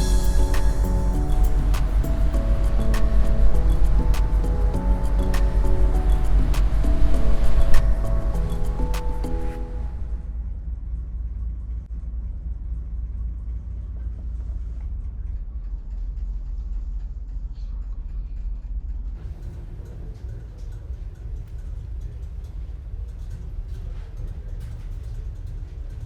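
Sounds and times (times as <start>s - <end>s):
background music: 0.0s - 10.4s
low engine rumble: 0.0s - 26.0s.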